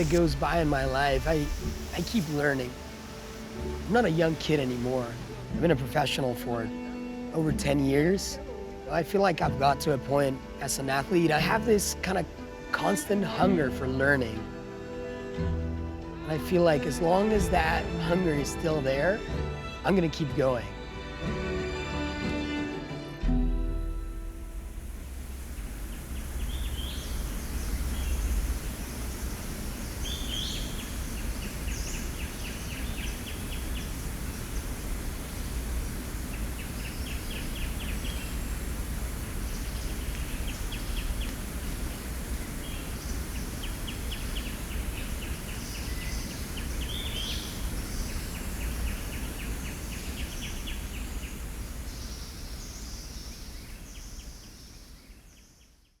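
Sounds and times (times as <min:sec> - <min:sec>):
birds rattling calls: 0:00.0 - 0:05.3, 0:25.1 - 0:54.8
insect hiss: 0:00.0 - 0:20.0, 0:23.4 - 0:56.0
bird chirps: 0:25.4 - 0:55.9.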